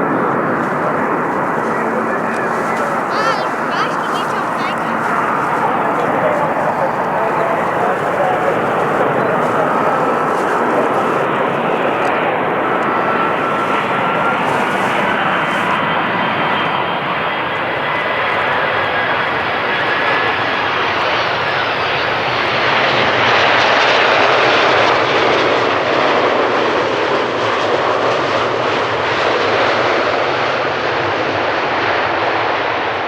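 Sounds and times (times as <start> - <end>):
jet engines rushing: 0.0 - 23.2.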